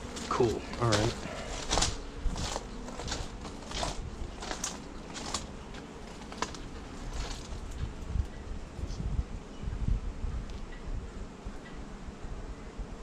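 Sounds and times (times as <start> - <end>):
beehive frames clicking and tapping: 0.0 - 8.1.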